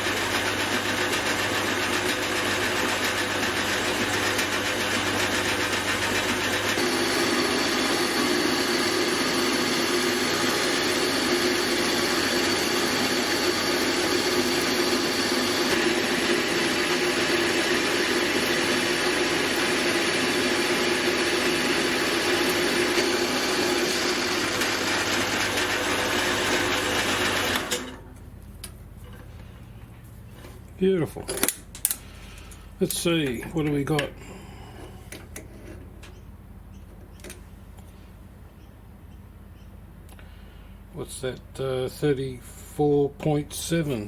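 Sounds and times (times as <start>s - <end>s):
milling machine cutting aluminium: 0.0s - 28.0s.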